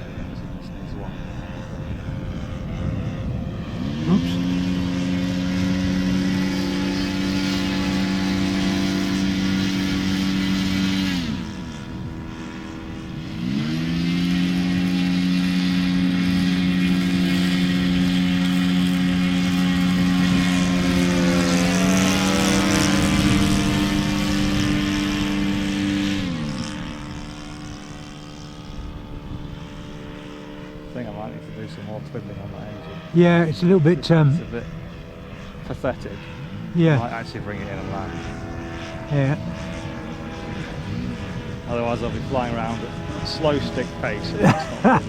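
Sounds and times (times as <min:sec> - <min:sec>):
people talking: 0:00.0 - 0:02.0, 0:04.0 - 0:04.4, 0:30.9 - 0:34.7, 0:35.6 - 0:38.3, 0:39.0 - 0:39.4, 0:41.6 - 0:45.0
model plane engine running: 0:00.0 - 0:45.0.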